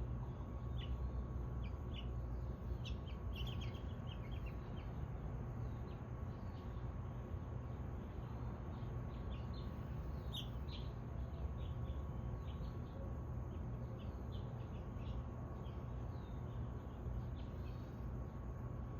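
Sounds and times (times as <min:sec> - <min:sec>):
birds chirping: 0:00.0 - 0:18.6.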